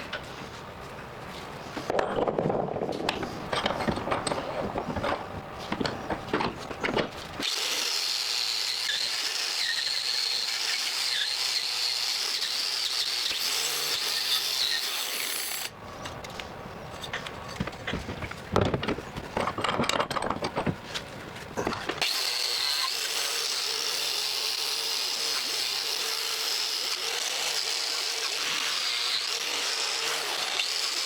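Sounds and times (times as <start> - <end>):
scraping and knocking: 1.8 - 7.4, 17.1 - 22.0
power tool whining on metal: 7.4 - 15.7, 22.0 - 31.0.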